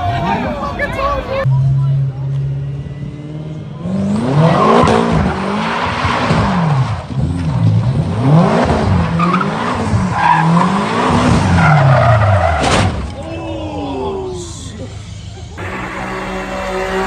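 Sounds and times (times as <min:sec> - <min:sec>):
car engine revving: 0:01.4 - 0:13.2, 0:15.1 - 0:17.0.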